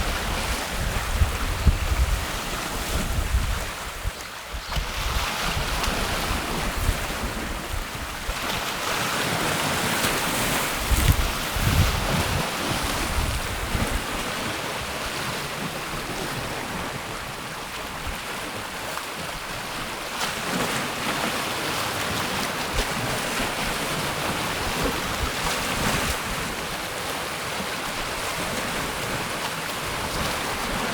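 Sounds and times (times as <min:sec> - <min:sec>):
wind buffeting microphone: 0:00.0 - 0:16.7
waves washing on a lake: 0:00.0 - 0:30.9.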